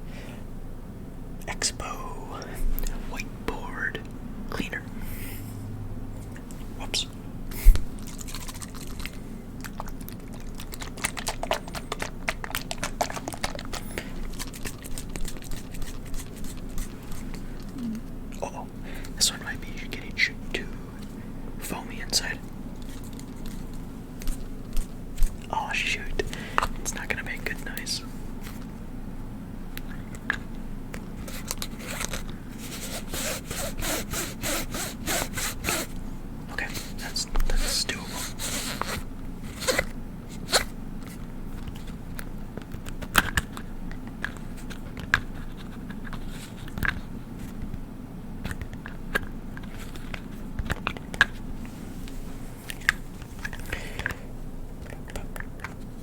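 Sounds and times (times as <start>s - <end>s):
bottle of liquid shaken: 7.7s - 9.2s.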